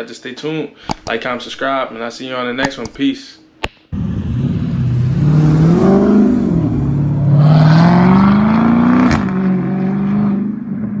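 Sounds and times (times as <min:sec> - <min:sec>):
sharp click: 0:00.8 - 0:01.6, 0:02.6 - 0:03.8
car engine revving: 0:03.9 - 0:11.0.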